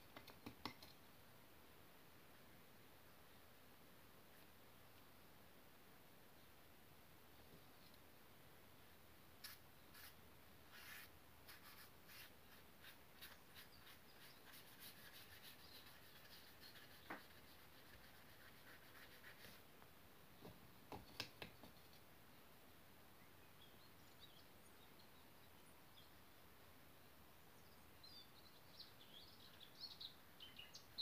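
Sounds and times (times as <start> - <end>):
pen scratching on paper: 10.7 - 19.6.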